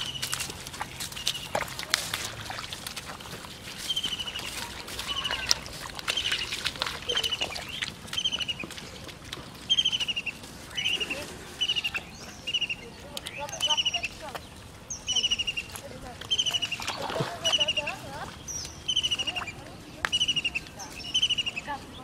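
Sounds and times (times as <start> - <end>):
footsteps through rice stubble: 0.0 - 13.1
bird chattering calls: 9.7 - 14.3, 14.9 - 21.8.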